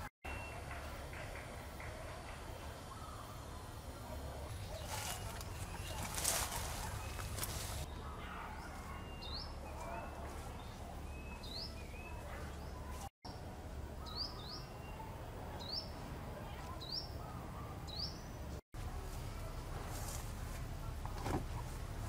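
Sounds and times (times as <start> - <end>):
small birds chirping: 2.4 - 18.6.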